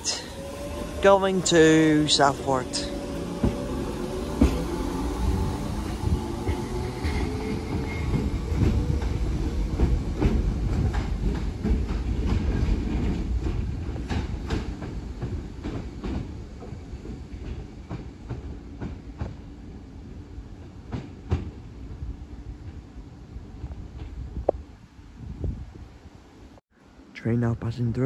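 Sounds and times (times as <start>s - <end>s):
electric train rumble: 0.0s - 26.6s
wheels clacking over rail joints: 0.4s - 19.4s.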